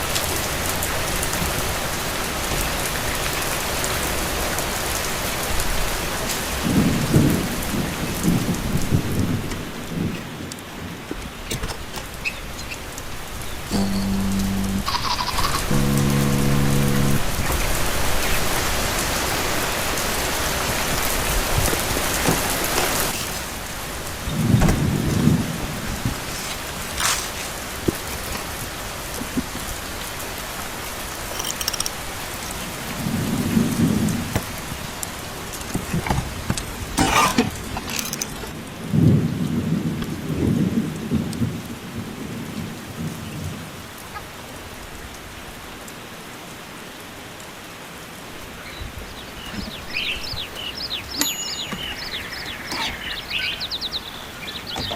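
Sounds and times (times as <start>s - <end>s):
heavy rain falling: 0.0s - 14.1s, 14.7s - 50.9s
sharp clicks: 31.3s - 32.1s.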